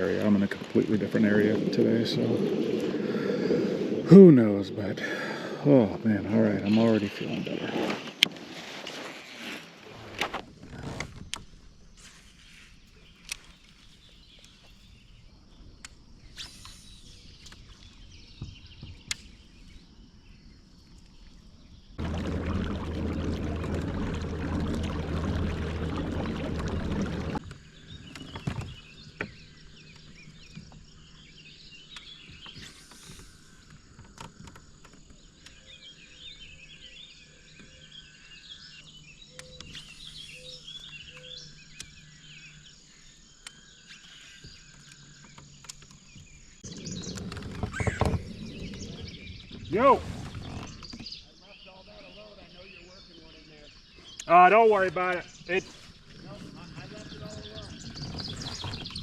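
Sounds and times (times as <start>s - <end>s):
birds chirping: 0.0s - 7.4s, 12.4s - 59.0s
low motor hum: 22.0s - 27.4s.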